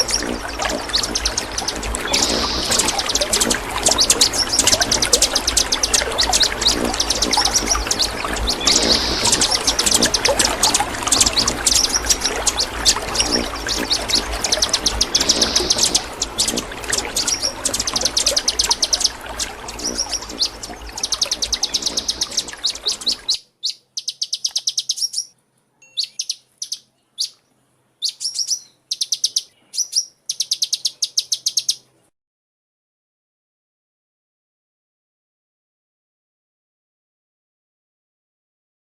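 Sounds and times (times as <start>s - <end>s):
steady rushing background: 0.0s - 23.3s
sunbird chirping trills: 0.0s - 27.4s, 28.0s - 31.8s.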